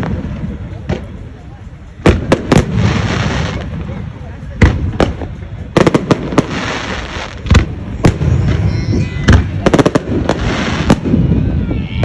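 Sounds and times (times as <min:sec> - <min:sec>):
fireworks bangs: 0:00.0 - 0:12.0
fireworks crackle: 0:00.0 - 0:12.0.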